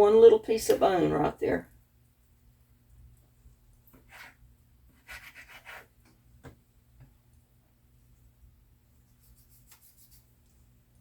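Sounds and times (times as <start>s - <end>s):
knife scraping raw chicken: 4.0s - 6.0s, 9.1s - 10.4s.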